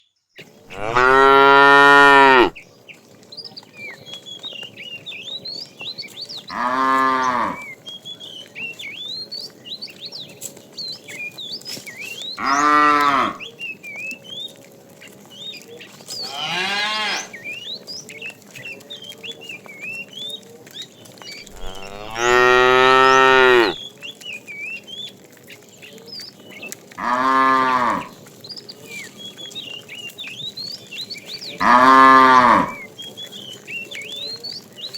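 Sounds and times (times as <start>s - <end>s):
cattle mooing: 0.7s - 2.6s, 6.5s - 7.6s, 12.4s - 13.4s, 21.5s - 23.8s, 27.0s - 28.1s, 31.6s - 32.8s.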